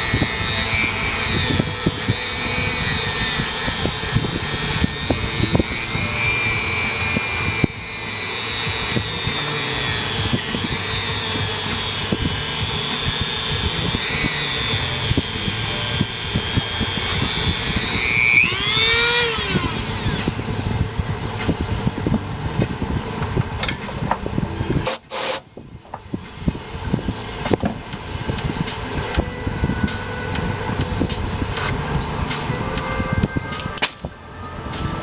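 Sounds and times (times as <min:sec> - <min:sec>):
wire wheel scraping: 0:00.0 - 0:25.4
rotary tool whine: 0:00.0 - 0:35.0.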